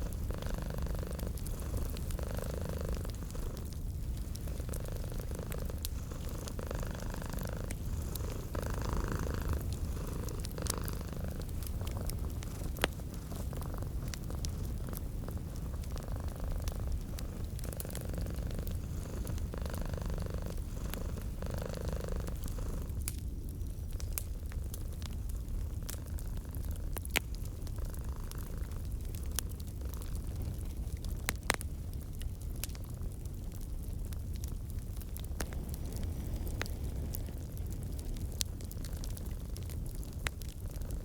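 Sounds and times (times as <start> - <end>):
cat purring: 0.0 - 23.1, 24.7 - 31.6, 38.5 - 41.0
fireplace crackling: 0.0 - 41.0.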